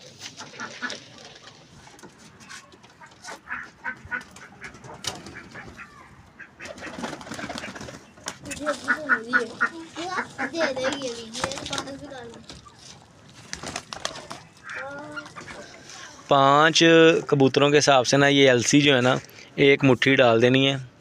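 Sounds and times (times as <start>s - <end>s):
birds calling: 0.0s - 16.6s
ducks quacking: 0.1s - 1.5s, 2.5s - 12.9s, 14.1s - 16.3s.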